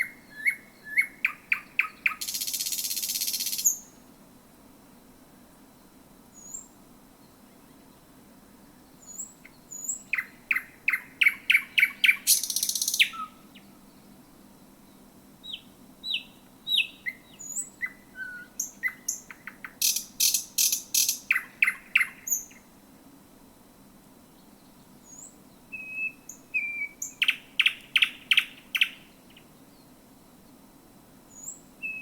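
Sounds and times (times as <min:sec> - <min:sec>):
bird singing clicks and whistles: 0:12.0 - 0:13.2.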